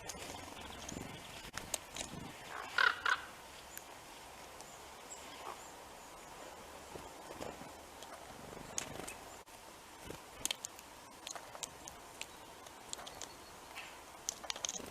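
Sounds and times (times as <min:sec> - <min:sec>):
faint outdoor background: 0:00.0 - 0:14.9
small birds ticking and chipping: 0:00.0 - 0:14.9.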